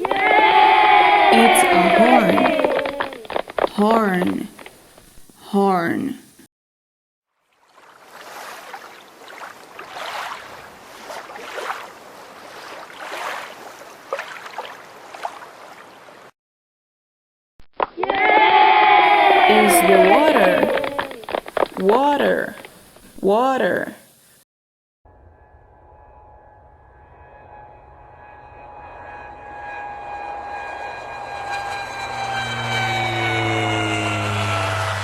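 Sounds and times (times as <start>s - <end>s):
water splashing and sloshing: 0.0s - 5.4s, 7.4s - 16.3s, 19.0s - 23.8s
thin steady whine: 25.1s - 35.0s
airplane engine rumble: 25.8s - 35.0s.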